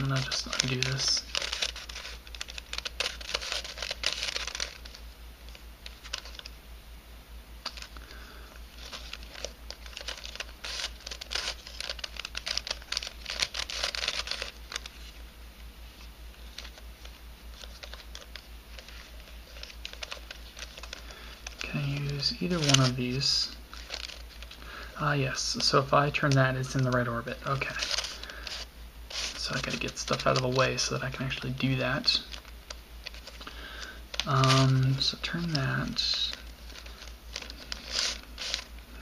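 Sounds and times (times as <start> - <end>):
puzzle pieces clicking and scraping: 0.0 - 5.0, 8.8 - 15.0, 25.5 - 32.4, 33.1 - 38.7.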